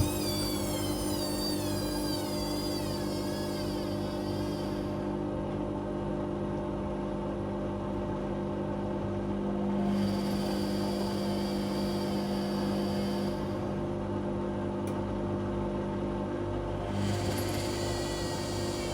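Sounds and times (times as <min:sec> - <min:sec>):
high wavering whine: 0:00.0 - 0:05.2
thin whine: 0:00.0 - 0:05.2, 0:09.8 - 0:13.9, 0:16.9 - 0:18.9
washing machine motor hum: 0:00.0 - 0:18.9.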